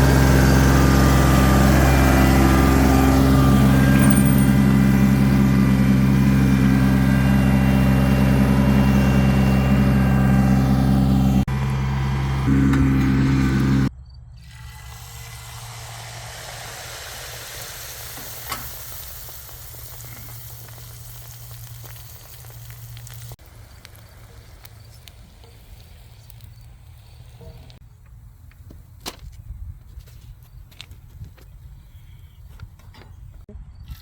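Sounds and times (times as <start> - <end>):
tractor engine humming: 0.0 - 13.9, 17.5 - 29.0
broad hiss: 14.7 - 27.4.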